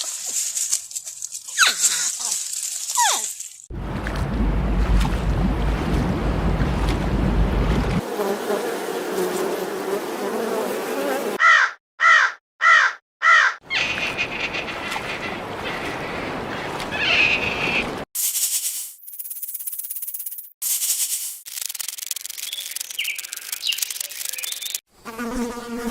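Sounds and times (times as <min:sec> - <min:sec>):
crow cawing: 0:11.4 - 0:13.6.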